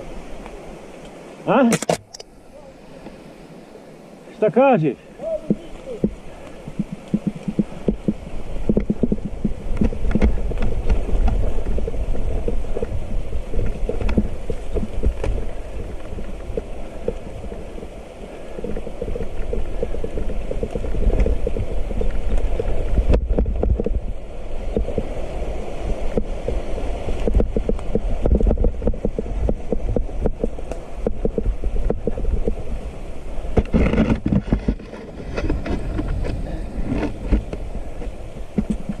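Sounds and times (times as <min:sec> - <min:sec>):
wind buffeting microphone: 0:05.1 - 0:39.0
bike knocks and rattles: 0:05.4 - 0:17.6, 0:26.0 - 0:32.7
mountain bike rumbling on trail: 0:05.4 - 0:39.0.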